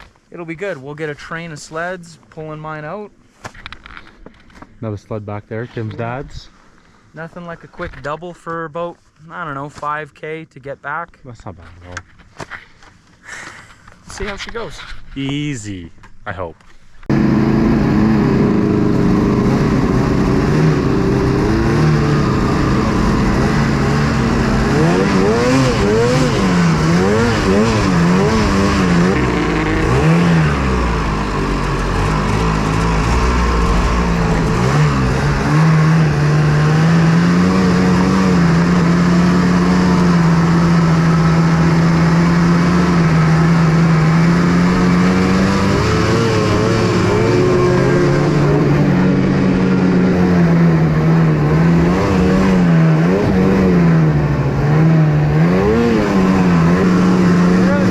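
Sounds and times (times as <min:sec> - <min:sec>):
snowmobile engine running: 0:17.1 - 0:57.9.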